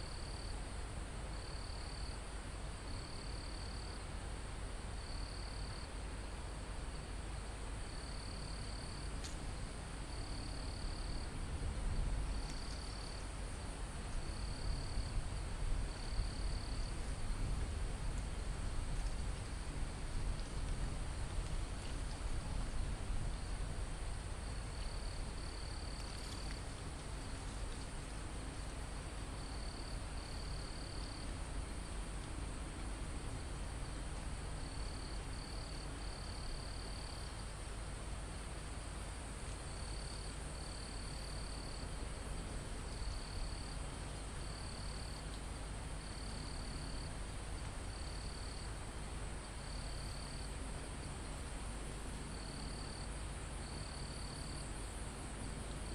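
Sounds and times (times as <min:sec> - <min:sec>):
low wind rumble: 0:00.0 - 0:55.9
insect trills: 0:12.2 - 0:32.2, 0:33.2 - 0:55.9.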